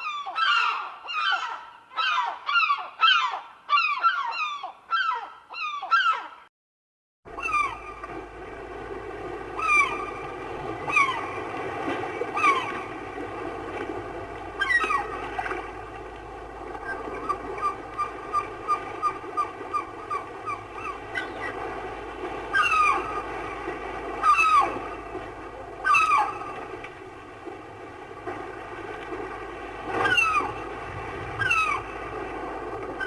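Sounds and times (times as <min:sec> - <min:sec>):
gulls calling: 0:00.0 - 0:06.4, 0:07.3 - 0:33.0
surf: 0:07.3 - 0:33.0.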